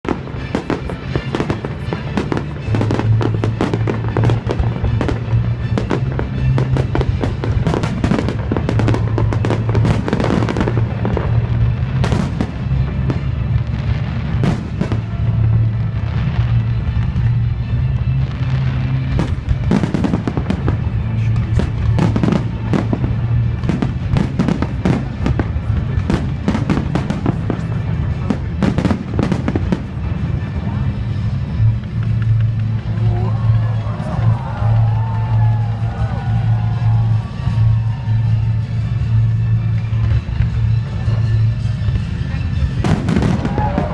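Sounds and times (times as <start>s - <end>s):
fireworks bangs and crackles: 0.0s - 43.9s
loud music with steady bass: 0.1s - 31.9s, 35.9s - 43.9s.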